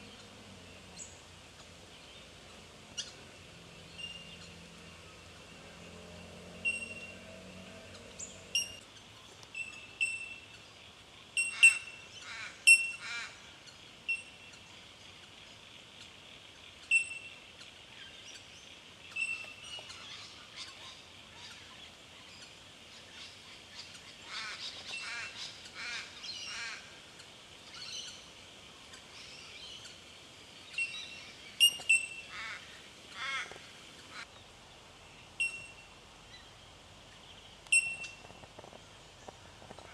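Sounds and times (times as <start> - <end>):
bell-like bird calls: 6.6 - 7.2, 8.5 - 8.8, 9.6 - 10.5, 11.4 - 12.1, 12.7 - 13.1, 14.1 - 14.4, 16.9 - 17.3, 31.6 - 32.4, 35.4 - 35.9, 37.7 - 38.2.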